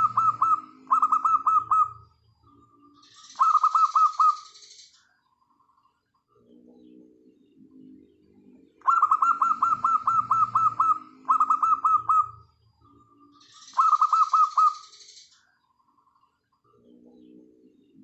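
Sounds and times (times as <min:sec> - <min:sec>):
dove cooing: 0:00.0 - 0:04.5, 0:08.8 - 0:14.9
bird rapid down-slurred notes: 0:08.8 - 0:14.8.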